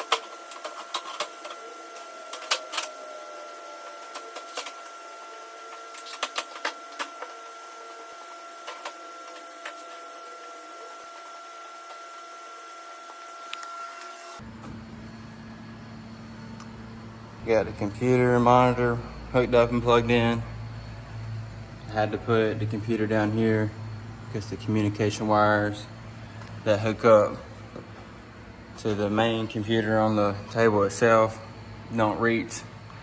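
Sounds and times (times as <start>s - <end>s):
high-pitched hum: 0.0s - 33.0s.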